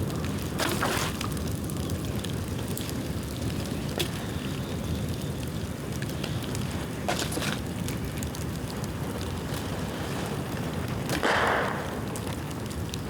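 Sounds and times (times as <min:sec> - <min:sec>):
bonfire crackling: 0:00.0 - 0:13.0
sharp pop of fire: 0:11.2 - 0:13.0.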